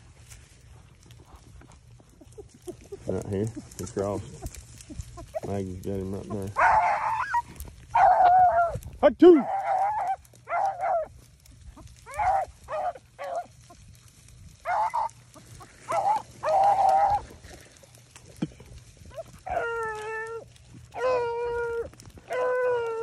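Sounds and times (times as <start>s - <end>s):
beagles baying: 0.9s - 23.0s
dogs howling: 4.0s - 17.9s, 19.0s - 23.0s
dogs barking: 4.4s - 14.0s, 14.6s - 17.5s, 19.0s - 23.0s.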